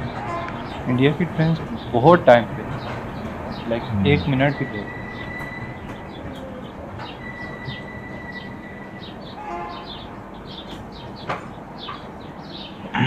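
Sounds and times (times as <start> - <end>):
birds chirping: 0.0 - 13.0
train rumbling: 0.0 - 13.0.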